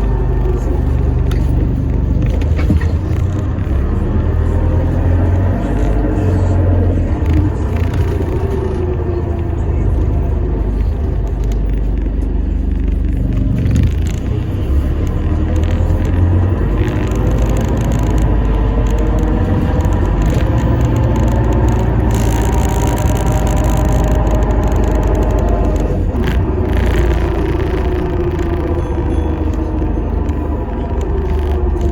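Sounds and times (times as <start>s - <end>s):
bus drivetrain and road rumble: 0.0s - 31.9s.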